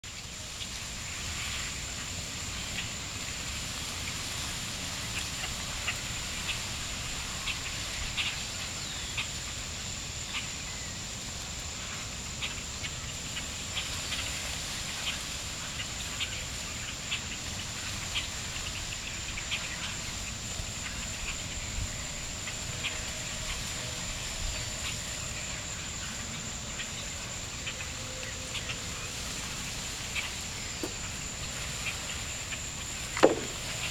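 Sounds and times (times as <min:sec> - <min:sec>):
birds chirping: 0:30.0 - 0:33.9
wings fluttering: 0:30.7 - 0:33.9.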